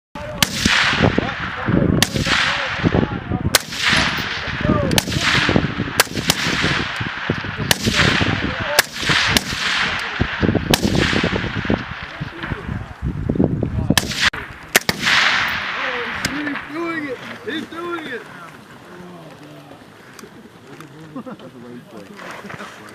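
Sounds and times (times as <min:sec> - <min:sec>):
gunshots with rolling echo: 0:00.2 - 0:13.1, 0:13.8 - 0:18.0.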